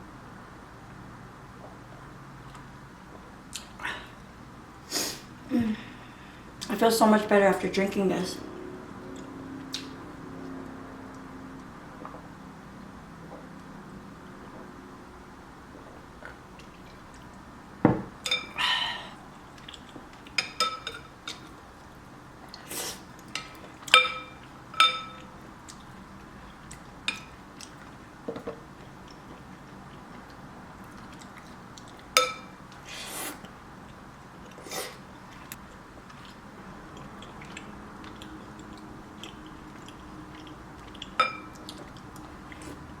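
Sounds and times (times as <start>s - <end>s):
utensils clinking against bowl: 23.4s - 25.2s, 41.2s - 41.8s
person slurping soup: 34.5s - 35.0s.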